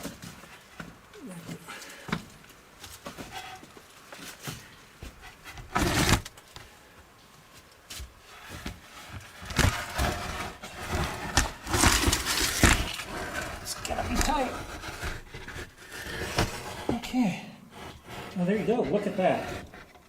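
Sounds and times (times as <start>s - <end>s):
wooden board scraping: 4.3s - 6.7s, 8.3s - 20.0s.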